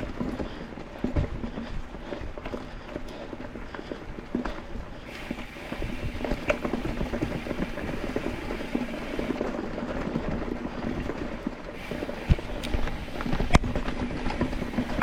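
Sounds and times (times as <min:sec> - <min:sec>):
bike rattling and clicking: 0:00.0 - 0:15.0.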